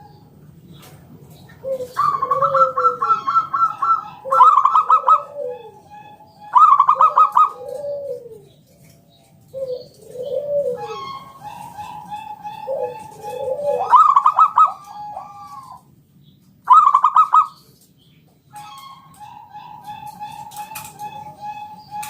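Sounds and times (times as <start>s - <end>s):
dove cooing: 0.0s - 15.9s, 16.7s - 17.6s, 18.6s - 22.0s.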